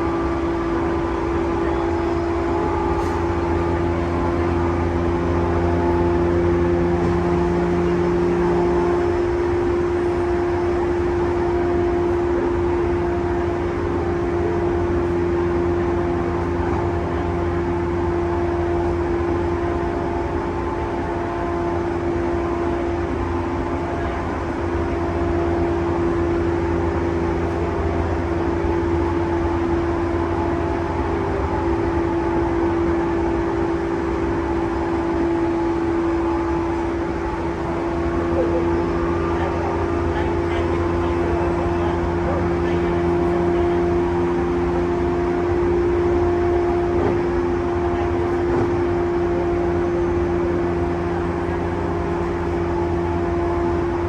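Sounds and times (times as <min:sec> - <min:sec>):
constant humming tone: 0:00.0 - 0:54.0
train wheels rumbling on rails: 0:00.0 - 0:54.0.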